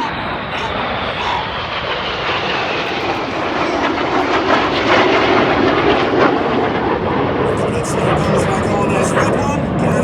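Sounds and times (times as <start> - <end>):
jet aircraft flying past: 0.0 - 10.0.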